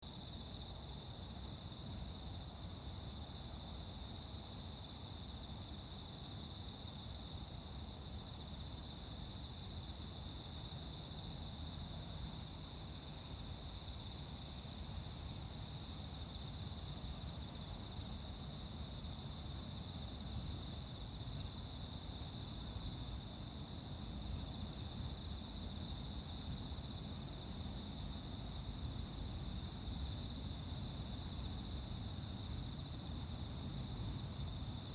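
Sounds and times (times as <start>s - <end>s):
insect chirping: 0.0s - 34.9s.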